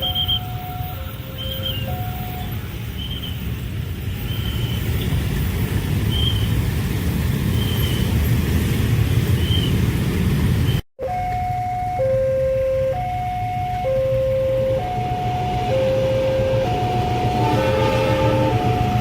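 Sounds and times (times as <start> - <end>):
train rumbling past: 13.5 - 19.0.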